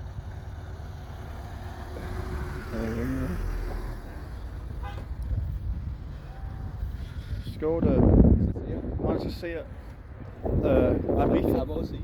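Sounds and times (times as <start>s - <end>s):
car passing slowly: 0.0s - 7.6s.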